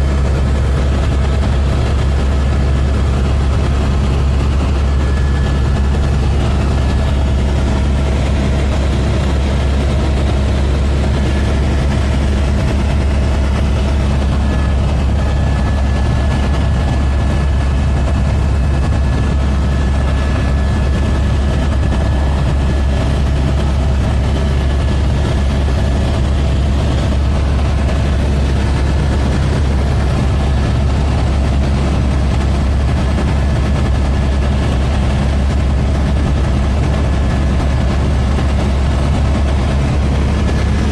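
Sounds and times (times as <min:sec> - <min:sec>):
helicopter droning: 0:00.0 - 0:40.9.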